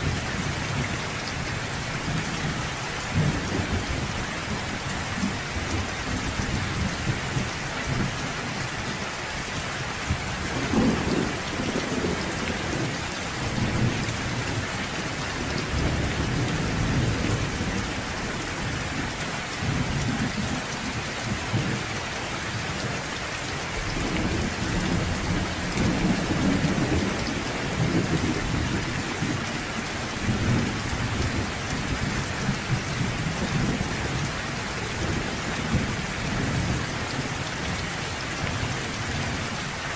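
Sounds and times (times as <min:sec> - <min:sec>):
steady rain falling: 0:00.0 - 0:39.9
low rolling thunder: 0:02.1 - 0:08.2, 0:10.1 - 0:14.6, 0:23.8 - 0:36.9.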